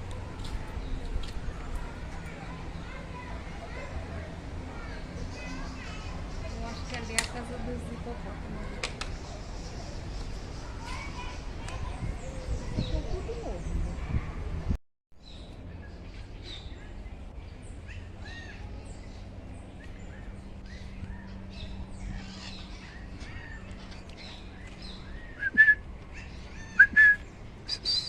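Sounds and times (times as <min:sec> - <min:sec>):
parakeets chirping: 0:20.1 - 0:25.4.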